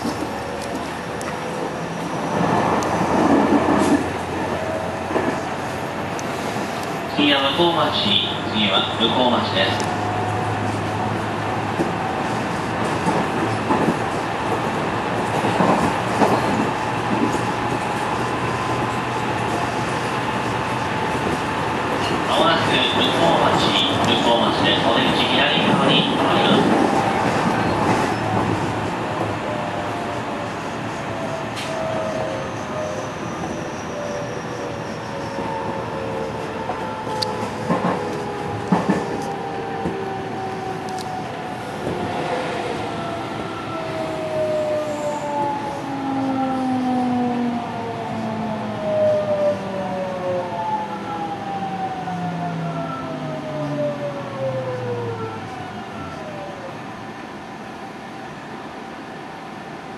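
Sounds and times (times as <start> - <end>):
train cabin rumble: 0.0 - 32.4, 35.2 - 44.4.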